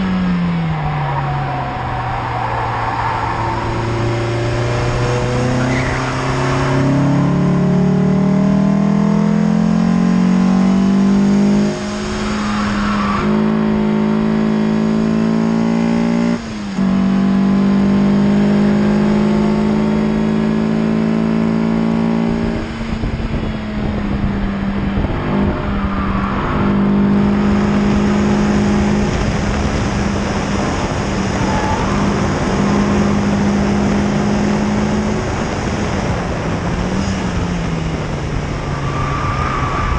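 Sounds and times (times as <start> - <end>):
car engine pulling hard: 0.0 - 39.9
road and wind noise: 0.0 - 39.9.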